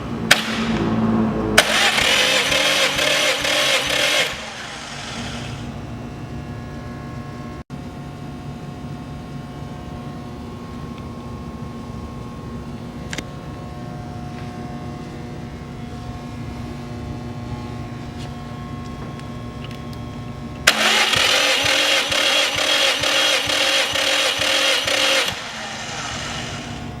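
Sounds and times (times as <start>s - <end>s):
steady hum: 0.0s - 27.0s
engine cranking by starter: 0.3s - 5.7s, 20.6s - 26.9s.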